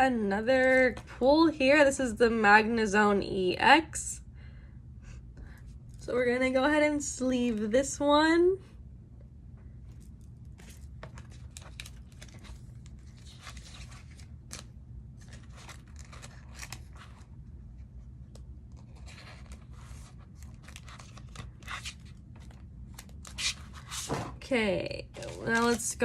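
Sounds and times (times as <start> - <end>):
plastic sleeve rustling: 9.9 - 17.3.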